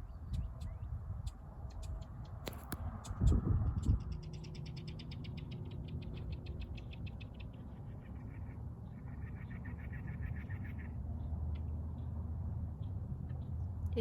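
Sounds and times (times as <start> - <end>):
bird trilling: 4.3 - 11.0.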